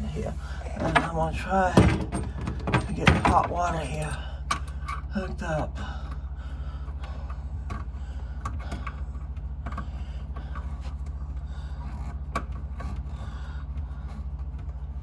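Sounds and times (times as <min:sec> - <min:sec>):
steady low hum: 0:00.0 - 0:15.0
light clicks and knocks of pipe fitting: 0:04.4 - 0:05.1.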